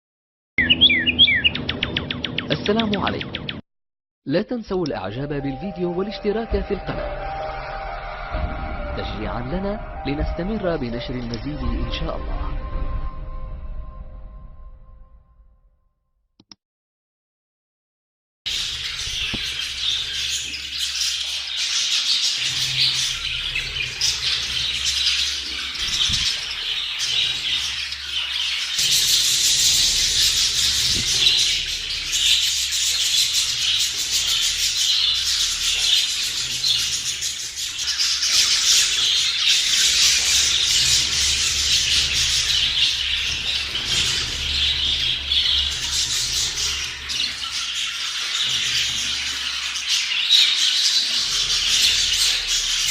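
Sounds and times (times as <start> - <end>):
budgerigars chattering and squawking: 0.6 - 3.6, 18.5 - 52.9.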